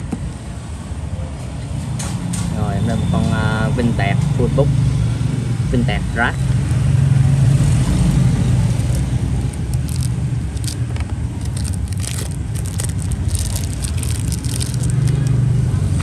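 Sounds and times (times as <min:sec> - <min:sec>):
road traffic rumble: 0:03.4 - 0:16.0.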